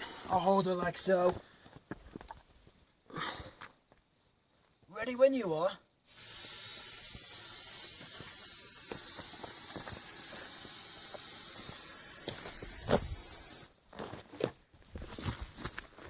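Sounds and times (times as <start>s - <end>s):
aerosol spray hissing: 6.1s - 13.7s.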